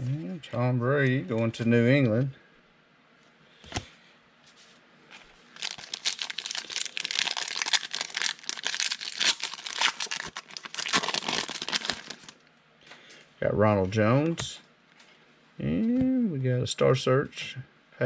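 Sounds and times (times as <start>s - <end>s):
foil wrapper tearing and crinkling: 5.6s - 12.4s.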